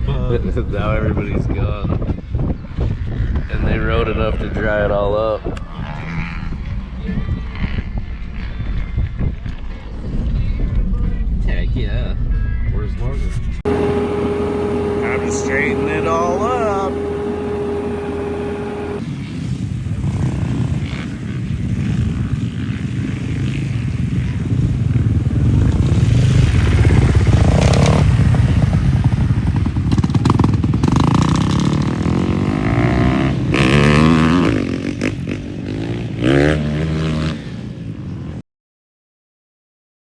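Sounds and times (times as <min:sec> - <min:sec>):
dirt bike engine revving: 0:13.7 - 0:19.0.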